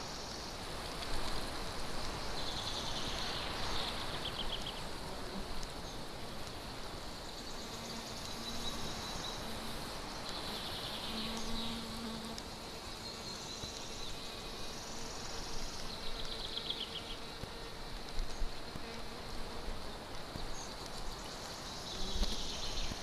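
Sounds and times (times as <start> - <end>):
songbirds singing: 2.1 - 19.0, 19.8 - 23.0
fly buzzing: 7.6 - 13.4.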